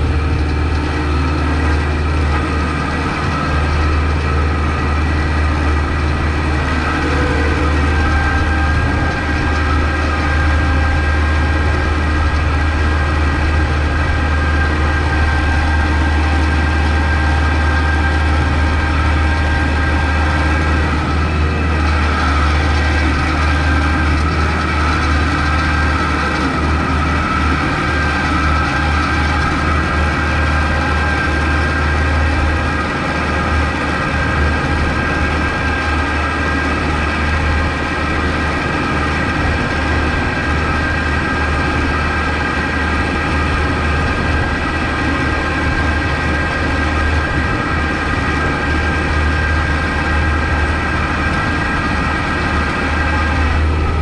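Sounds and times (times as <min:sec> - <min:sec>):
steady high whine: 0:00.0 - 0:54.0
tractor diesel engine droning: 0:00.0 - 0:54.0.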